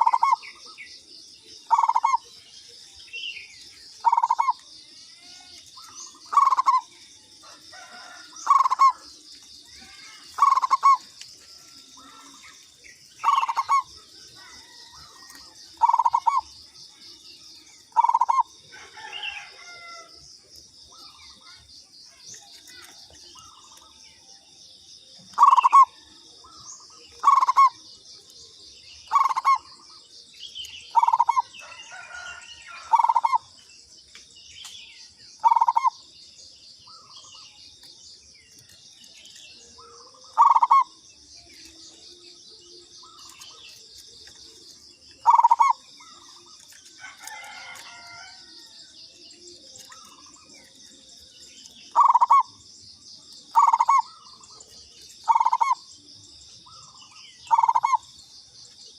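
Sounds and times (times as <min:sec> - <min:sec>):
dove cooing: 0:00.0 - 0:00.6, 0:01.7 - 0:02.3, 0:04.0 - 0:17.2, 0:17.8 - 0:20.1, 0:25.3 - 0:26.1, 0:27.1 - 0:27.8, 0:29.1 - 0:30.0, 0:30.9 - 0:33.5, 0:35.4 - 0:36.0, 0:39.8 - 0:41.0, 0:41.6 - 0:48.6, 0:51.8 - 0:52.6, 0:53.5 - 0:55.8, 0:56.7 - 0:58.0.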